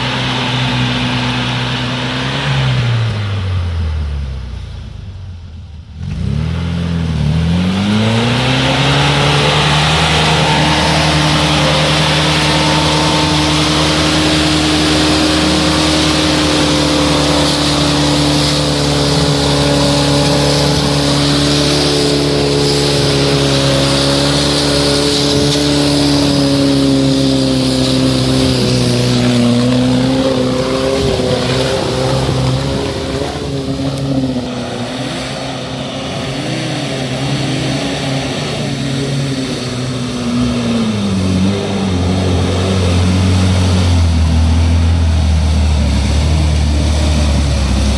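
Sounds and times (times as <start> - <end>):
off-road vehicle engine revving: 0.0 - 47.9.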